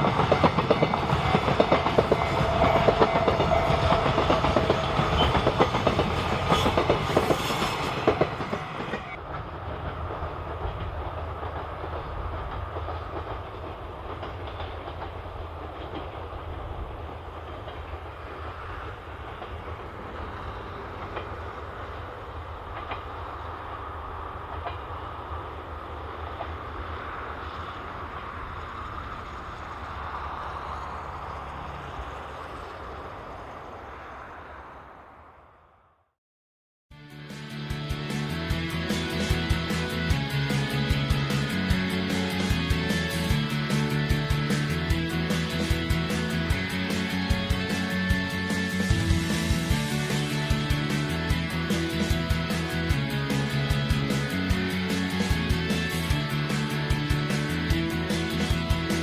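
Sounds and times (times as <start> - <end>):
train wheels clattering over rail joints: 0.0 - 34.2
train rumble: 0.0 - 36.0, 37.5 - 59.0.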